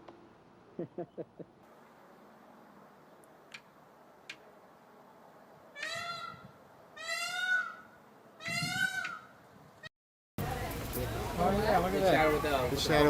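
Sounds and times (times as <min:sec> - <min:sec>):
bird calling: 0:05.7 - 0:09.6.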